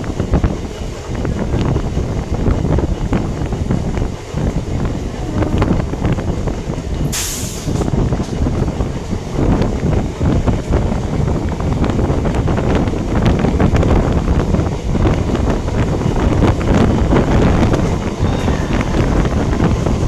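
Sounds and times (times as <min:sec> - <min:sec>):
train wheels rattling on rails: 0:00.0 - 0:20.0
wind buffeting microphone: 0:00.0 - 0:20.0
short hiss: 0:07.1 - 0:07.9.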